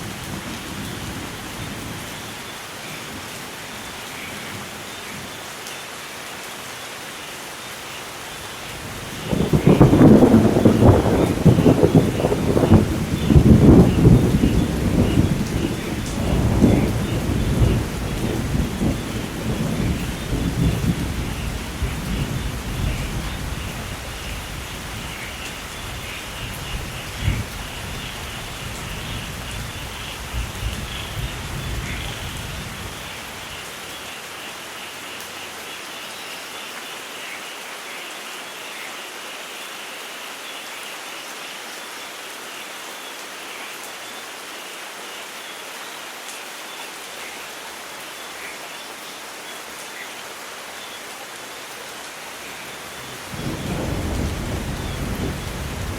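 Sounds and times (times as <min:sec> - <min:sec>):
steady rain: 0:00.0 - 0:55.9
thunder rumbling: 0:08.8 - 0:33.5, 0:52.5 - 0:55.9
sharp thunder crack: 0:09.3 - 0:17.8, 0:53.0 - 0:55.9.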